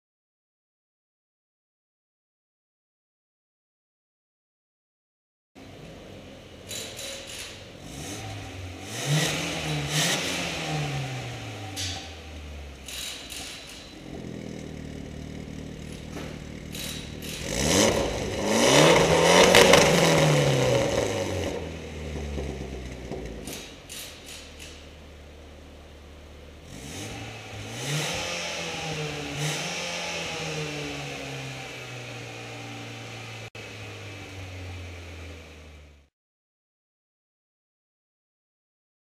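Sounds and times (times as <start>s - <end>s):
car engine idling and revving: 5.6s - 36.1s.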